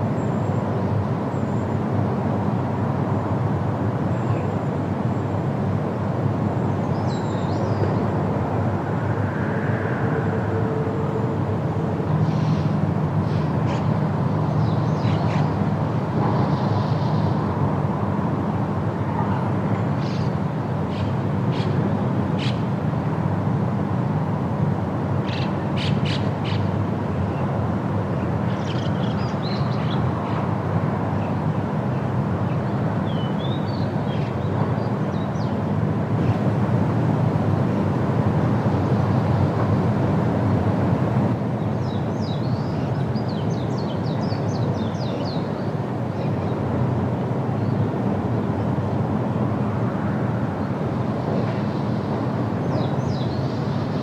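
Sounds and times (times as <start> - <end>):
wind blowing through trees: 0.0 - 54.0
birds calling and chirping: 25.3 - 27.5.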